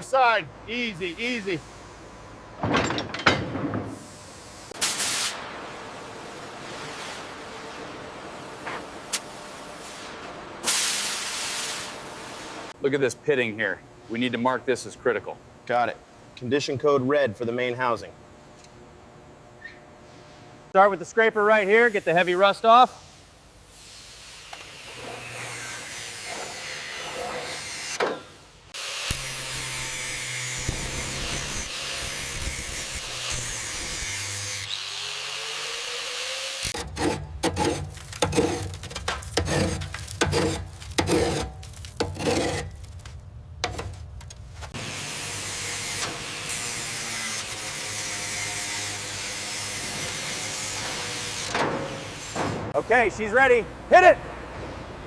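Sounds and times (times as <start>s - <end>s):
scraping rust off steel: 36.6s - 44.8s.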